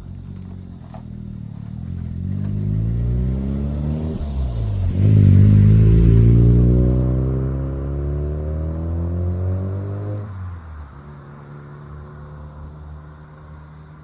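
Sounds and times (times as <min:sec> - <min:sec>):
rotary engine accelerating: 0:00.4 - 0:10.4.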